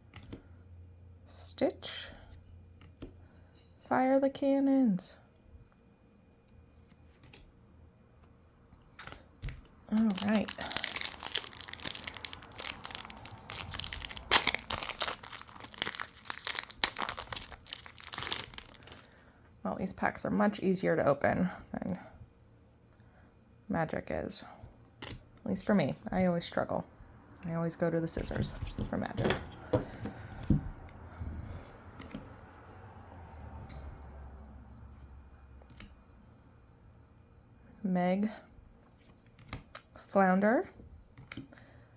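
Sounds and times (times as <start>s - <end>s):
cards rustling: 8.8s - 19.2s
foil wrapper crinkling and tearing: 9.9s - 19.2s.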